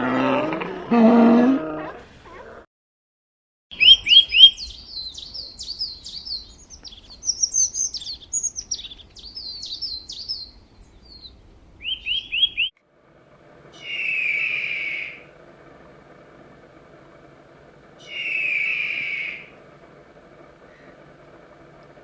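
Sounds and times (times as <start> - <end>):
songbird chirps and trills: 3.7 - 12.8, 13.4 - 22.0.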